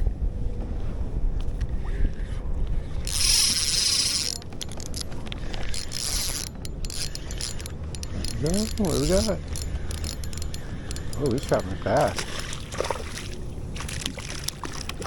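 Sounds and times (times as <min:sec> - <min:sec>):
wind rumble on microphone: 0:00.0 - 0:15.0
fishing line running off reel: 0:01.8 - 0:12.7
reel clicking: 0:02.9 - 0:12.7.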